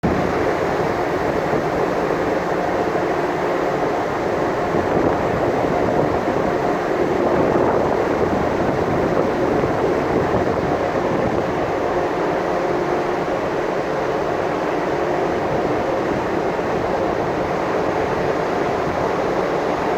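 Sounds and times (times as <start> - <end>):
ship underway at sea: 0.0 - 19.9.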